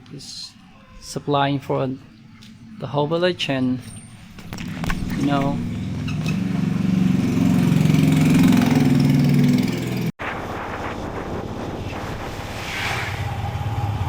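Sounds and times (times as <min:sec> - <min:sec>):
engine running: 0:04.4 - 0:10.1
rushing noise: 0:10.2 - 0:14.0.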